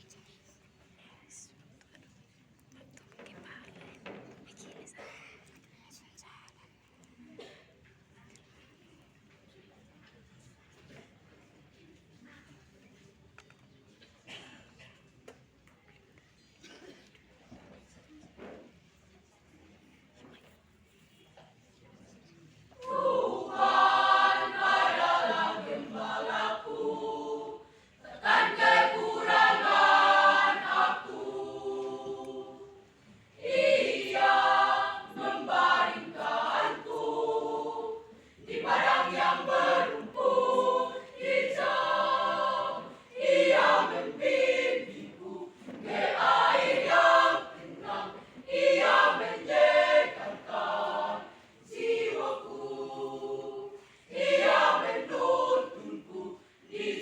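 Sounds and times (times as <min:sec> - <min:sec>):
choir singing: 0:22.8 - 0:57.0.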